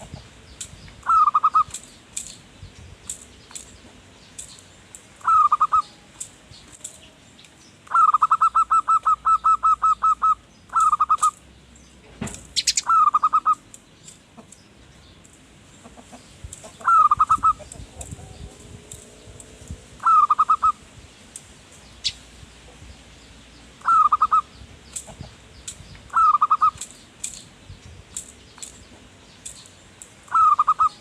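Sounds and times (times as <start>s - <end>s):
small birds chirping: 0.0s - 31.0s
dove cooing: 1.0s - 1.8s, 5.2s - 6.0s, 7.9s - 11.4s, 12.7s - 13.7s, 16.6s - 20.8s, 23.8s - 25.2s, 26.1s - 26.9s, 30.3s - 31.0s.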